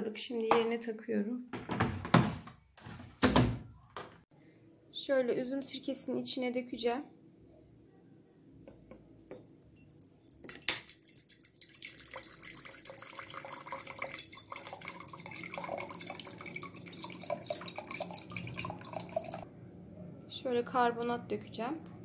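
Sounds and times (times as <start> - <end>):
liquid pouring and gurgling: 9.3 - 19.4.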